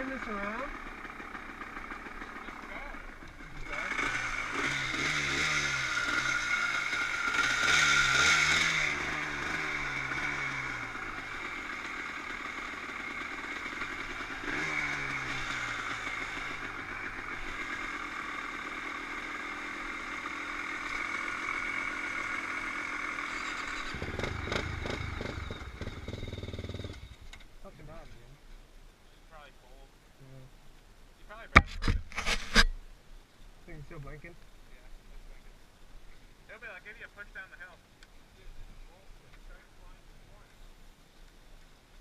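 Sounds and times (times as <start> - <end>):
dirt bike engine revving: 0.0 - 27.4.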